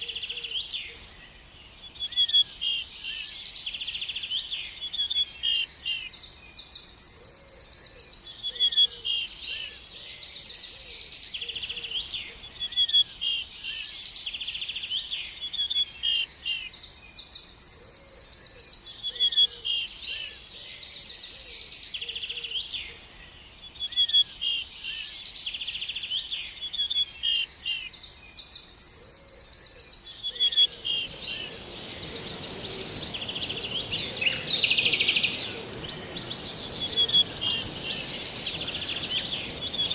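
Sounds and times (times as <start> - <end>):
songbird singing buzzy trills: 29.6 - 39.9
steady high hiss: 30.4 - 39.9.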